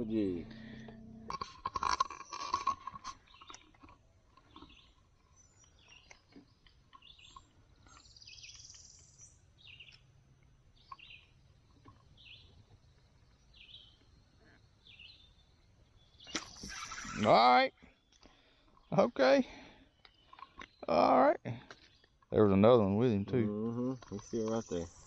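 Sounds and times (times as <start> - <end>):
faint low rumble: 0.0 - 1.4
short high bird chirps: 16.2 - 17.4.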